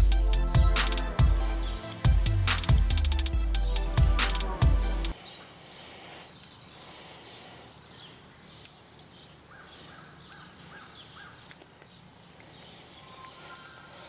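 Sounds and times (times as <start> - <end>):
birds chirping: 4.9 - 14.0.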